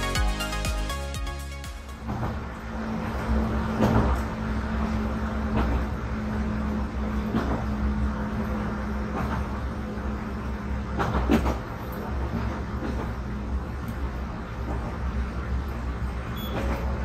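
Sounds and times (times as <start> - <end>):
railcar engine droning: 0.0 - 17.0.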